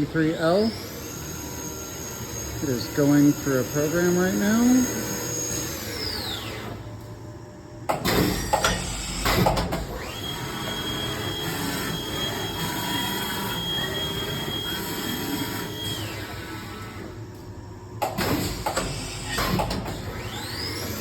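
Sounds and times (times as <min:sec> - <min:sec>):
spindle whine: 0:00.0 - 0:07.8.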